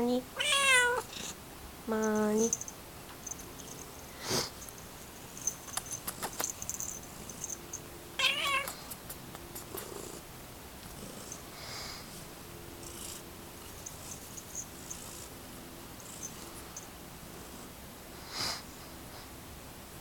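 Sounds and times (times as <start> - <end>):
cat purring: 0.4 - 8.8, 9.4 - 17.7
light rustles and clicks: 5.4 - 7.0.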